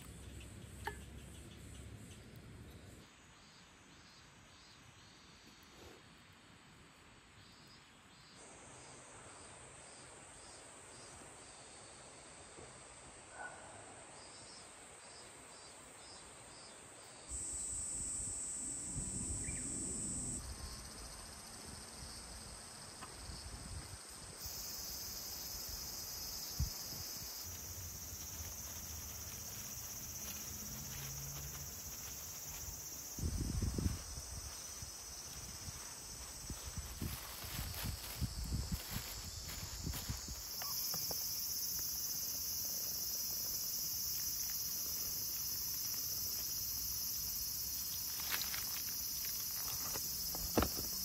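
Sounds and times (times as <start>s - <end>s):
insects chirring: 14.2s - 51.0s
rustling and handling thuds: 49.6s - 51.0s.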